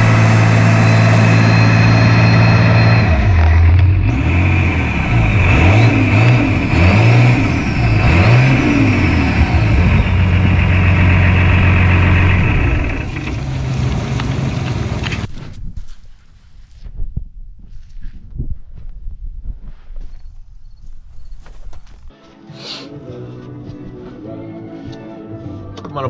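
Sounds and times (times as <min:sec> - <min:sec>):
diesel engine revving: 0:00.0 - 0:15.3.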